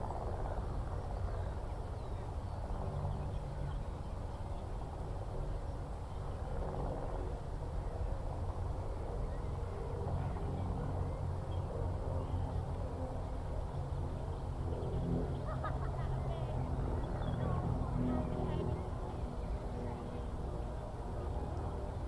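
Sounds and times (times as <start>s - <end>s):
distant engine drone: 8.6s - 22.0s.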